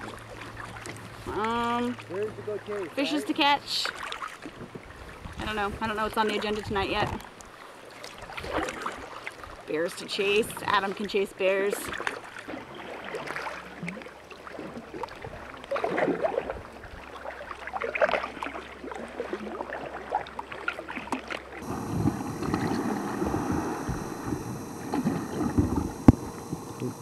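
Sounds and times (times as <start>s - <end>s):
paddle strokes splashing water: 0.0s - 27.0s
dense steady noise: 21.6s - 27.0s.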